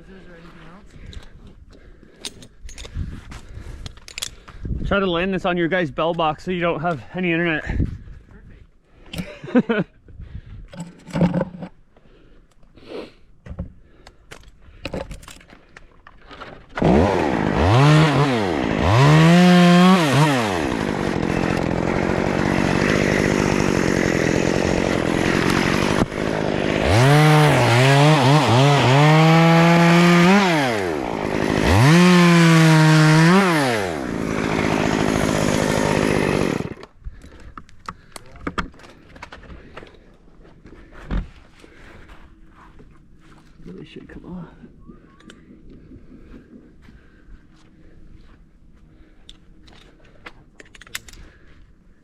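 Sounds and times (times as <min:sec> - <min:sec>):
chainsaw revving: 0:16.7 - 0:37.0.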